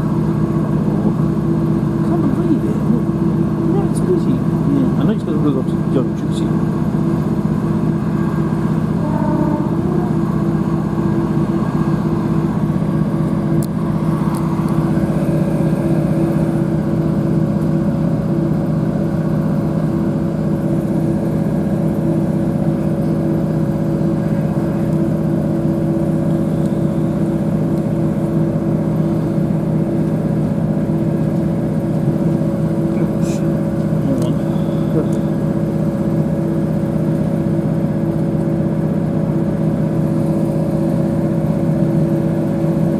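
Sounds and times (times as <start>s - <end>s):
train diesel engine drone: 0.0s - 42.9s
higher steady tone: 7.8s - 13.4s.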